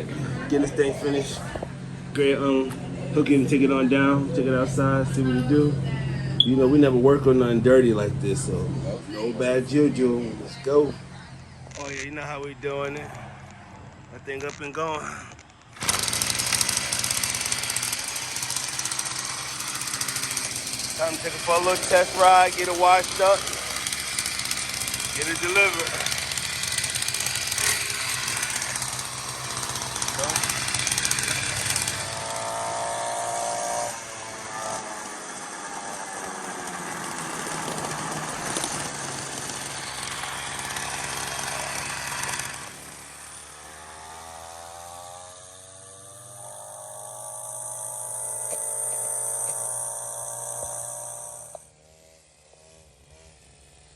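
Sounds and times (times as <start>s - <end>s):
dirt bike engine running: 8.6s - 53.9s.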